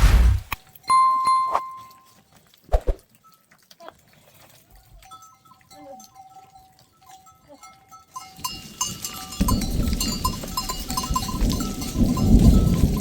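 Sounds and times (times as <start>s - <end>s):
loud low noise: 0.0s - 0.6s
animal bells clinking: 0.8s - 13.0s.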